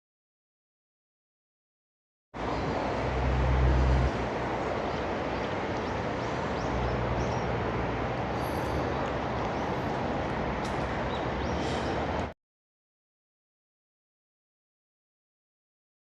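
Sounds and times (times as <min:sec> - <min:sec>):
rushing outdoor noise: 0:02.4 - 0:12.4.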